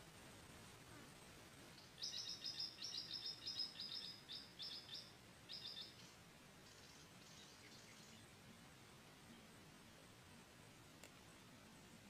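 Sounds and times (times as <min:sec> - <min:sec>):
bird chirping: 0:01.7 - 0:08.4.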